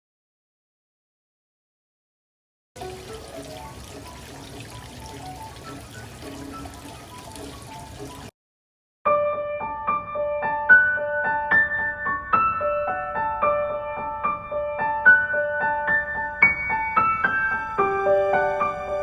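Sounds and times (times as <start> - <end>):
gentle piano melody: 2.8 - 8.3, 9.1 - 19.0.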